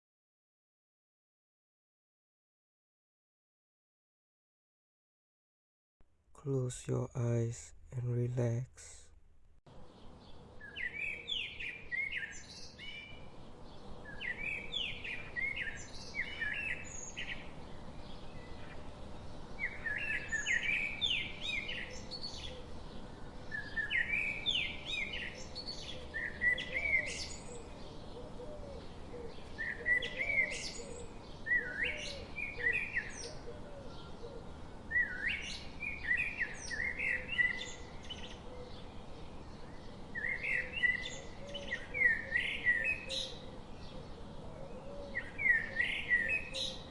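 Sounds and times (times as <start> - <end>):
songbirds chirping: 33.8 - 46.9.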